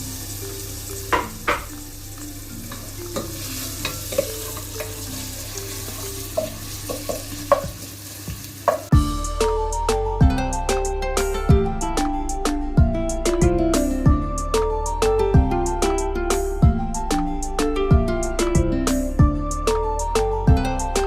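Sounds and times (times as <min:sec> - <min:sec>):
plucked guitar music: 0:00.0 - 0:07.7, 0:08.9 - 0:21.0
onions sizzling in oil: 0:00.0 - 0:09.3.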